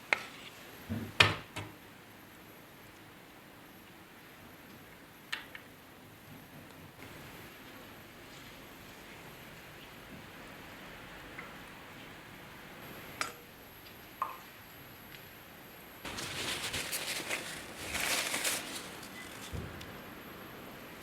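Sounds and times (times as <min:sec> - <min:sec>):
crackling rustle: 0:16.0 - 0:21.0.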